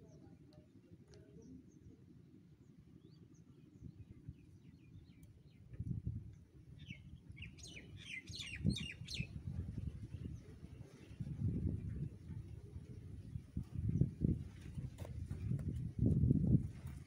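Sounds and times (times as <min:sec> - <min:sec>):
small birds chirping: 0:06.8 - 0:09.4.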